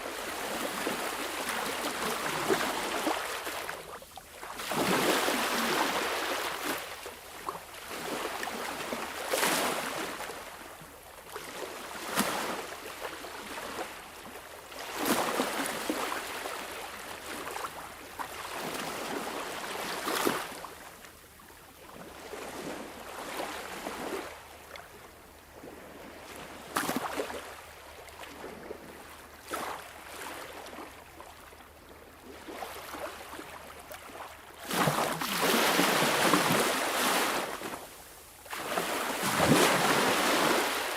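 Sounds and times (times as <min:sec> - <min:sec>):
sea waves breaking: 0:04.6 - 0:07.1, 0:34.6 - 0:40.9
water splashes: 0:32.2 - 0:37.7, 0:38.5 - 0:40.9.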